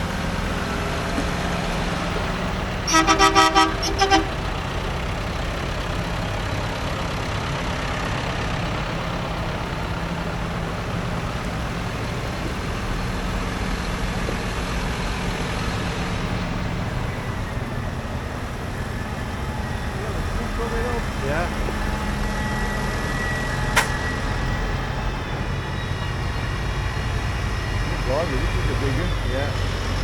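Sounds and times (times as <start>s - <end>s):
tractor engines running: 0.0s - 30.0s
vehicle horn toots: 2.8s - 4.7s.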